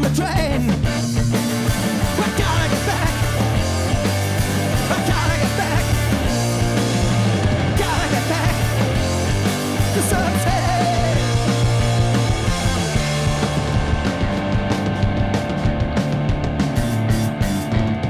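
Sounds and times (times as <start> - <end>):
bass line: 0.0 - 18.0
live punk rock band: 0.0 - 18.0
person singing: 2.0 - 3.9, 4.8 - 6.2, 7.7 - 9.2, 9.8 - 11.6.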